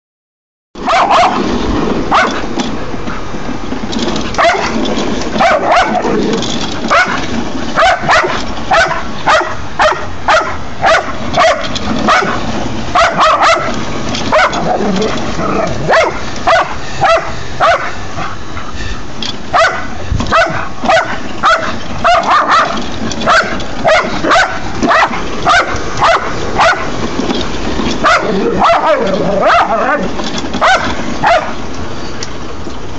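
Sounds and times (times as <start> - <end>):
dog barking: 0.8 - 1.4, 2.1 - 2.4, 4.4 - 4.7, 5.4 - 6.1, 6.9 - 7.2, 7.8 - 12.4, 13.0 - 13.7, 14.3 - 14.8, 15.8 - 18.3, 19.5 - 26.9, 28.0 - 30.0, 30.6 - 31.6
lawn mower droning: 0.8 - 32.9.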